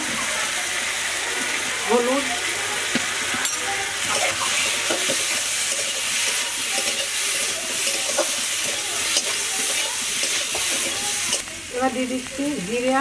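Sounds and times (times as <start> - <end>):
food frying in oil: 0.0 - 13.0
metal spatula scraping pan: 3.4 - 11.4.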